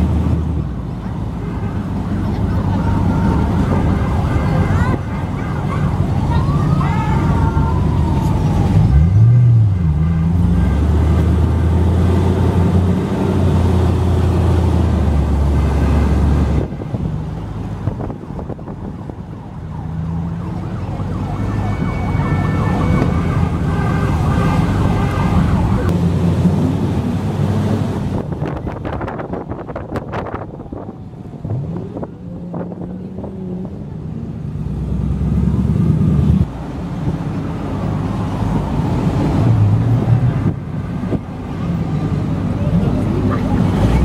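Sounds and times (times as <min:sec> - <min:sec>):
road noise: 0:00.0 - 0:44.0.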